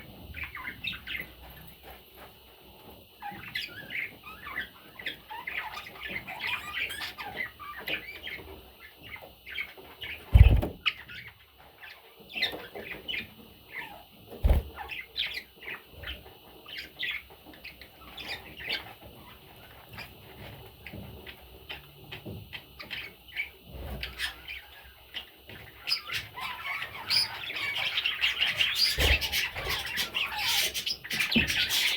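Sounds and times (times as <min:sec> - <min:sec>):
baby budgerigars chirping: 0:00.2 - 0:02.3, 0:03.2 - 0:31.9
low thumps: 0:10.3 - 0:10.9.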